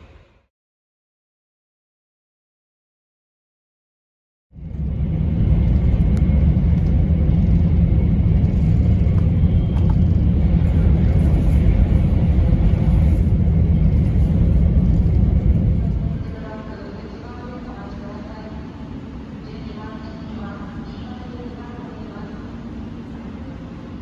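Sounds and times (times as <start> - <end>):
train cabin low rumble: 4.6 - 24.0.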